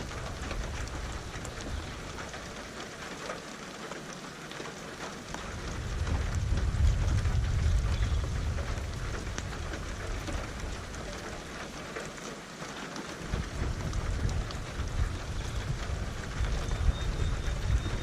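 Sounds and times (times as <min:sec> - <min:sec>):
rain pattering: 0:00.0 - 0:18.0
thunder rumble: 0:05.4 - 0:11.8, 0:13.2 - 0:18.0.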